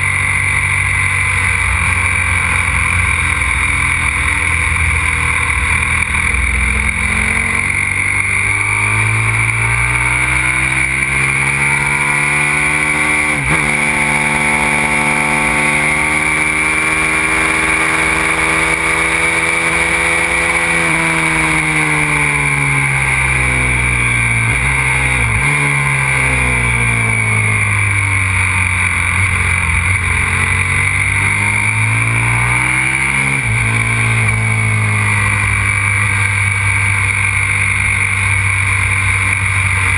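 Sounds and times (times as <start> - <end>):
motorcycle engine revving and shifting: 0.0 - 39.9.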